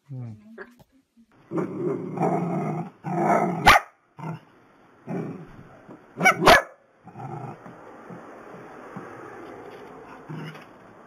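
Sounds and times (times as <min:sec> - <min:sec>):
dog barking sharply: 0:03.6 - 0:04.0, 0:06.2 - 0:06.8
small dogs growling: 0:04.2 - 0:05.6, 0:07.0 - 0:07.7.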